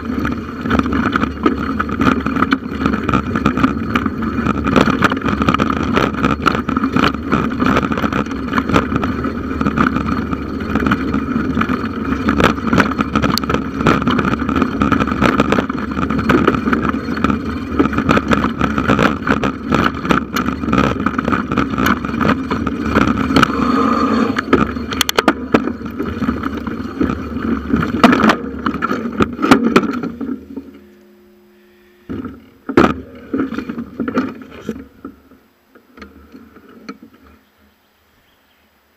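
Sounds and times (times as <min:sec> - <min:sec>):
bike rattling clicks: 0:00.0 - 0:30.9
tyres rumbling on trail: 0:00.0 - 0:38.9.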